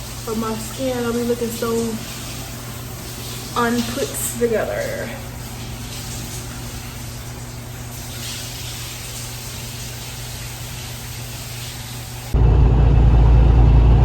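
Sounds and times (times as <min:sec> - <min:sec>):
loud deep vehicle engine noise: 0:12.4 - 0:14.0
low even hum: 0:12.4 - 0:14.0.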